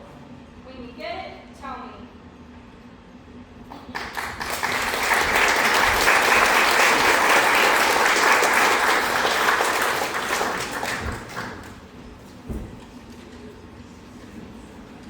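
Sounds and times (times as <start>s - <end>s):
audience applauding: 3.7s - 11.9s.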